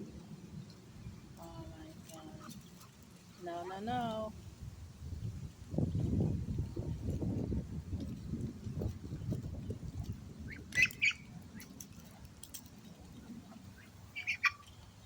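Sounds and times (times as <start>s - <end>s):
ducks squawking: 10.5s - 11.3s, 13.6s - 14.7s.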